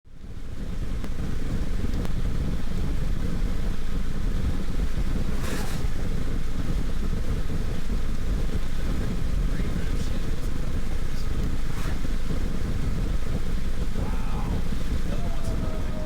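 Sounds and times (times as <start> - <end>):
wind buffeting microphone: 0.2 - 16.0
short rushing hiss: 5.3 - 6.3, 9.8 - 16.0.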